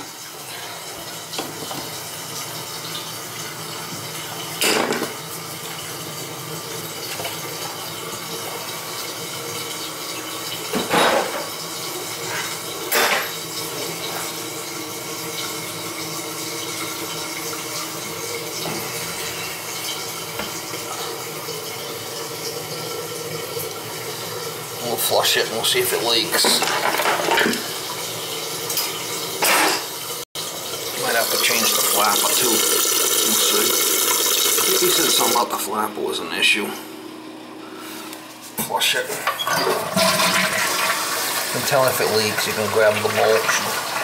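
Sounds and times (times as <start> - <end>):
toilet tank refilling hiss: 30.4 - 35.5, 39.7 - 44.0.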